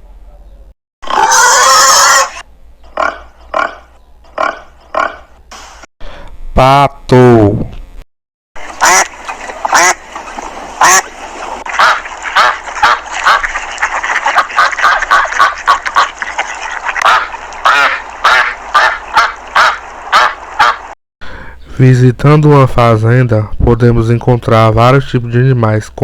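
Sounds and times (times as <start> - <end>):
ducks quacking: 8.6 - 21.0.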